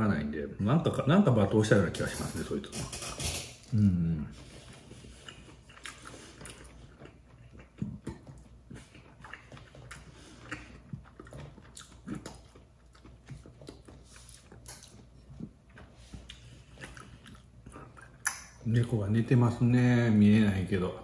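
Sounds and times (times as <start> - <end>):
man chewing food: 2.7 - 19.4.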